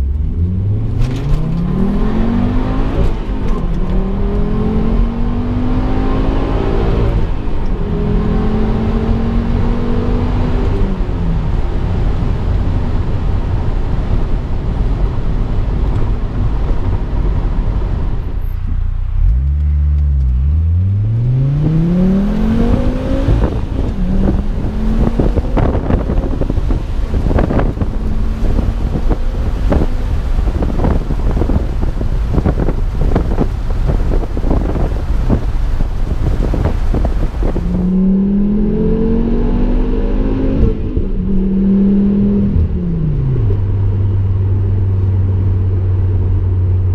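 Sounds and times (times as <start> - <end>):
car engine and exhaust revving: 0.0 - 46.9
exhaust pops: 21.7 - 37.9.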